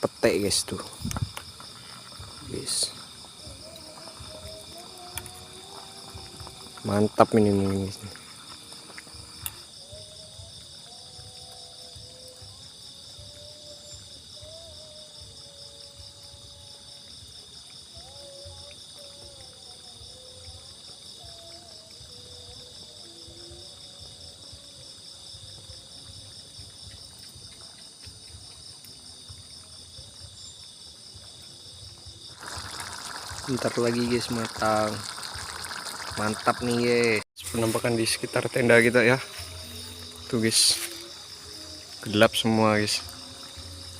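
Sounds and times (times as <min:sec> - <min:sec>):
night insects buzzing and trilling: 0:00.0 - 0:43.9.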